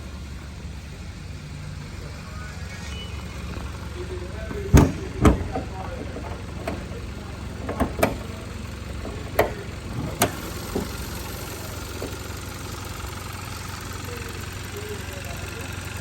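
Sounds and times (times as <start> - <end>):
car engine idling: 0.0 - 16.0
sharp knocks: 9.0 - 11.2.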